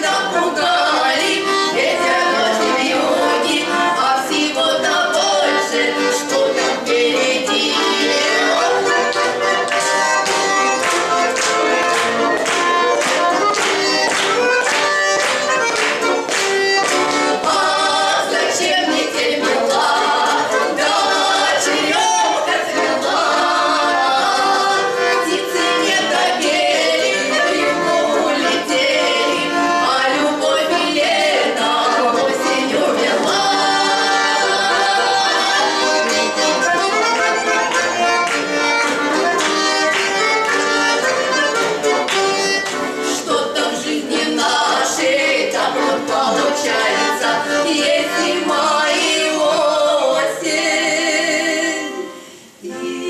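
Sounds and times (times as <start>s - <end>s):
women singing duet: 0.0s - 9.0s, 17.4s - 36.5s, 43.1s - 53.0s
button accordions playing chords: 0.0s - 53.0s.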